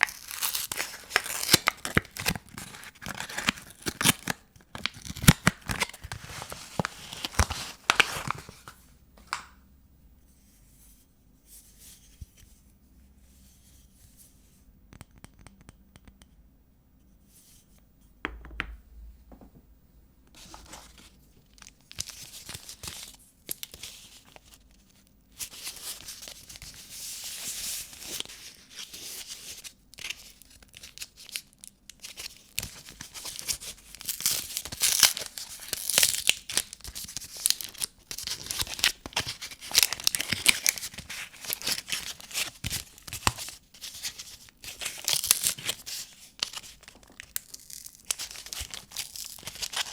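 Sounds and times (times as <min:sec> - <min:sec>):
wrapper tearing and crinkling: 0:00.0 - 0:08.8, 0:29.9 - 0:49.9.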